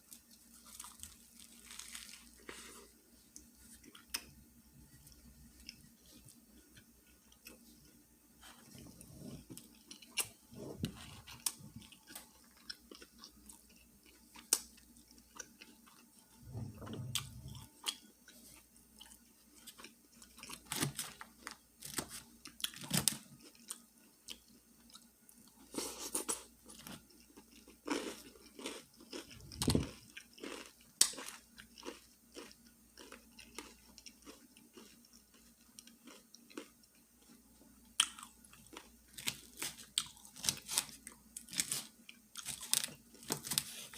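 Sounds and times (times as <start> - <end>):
crunchy chewing and biting: 0.5 - 2.9, 25.6 - 43.9.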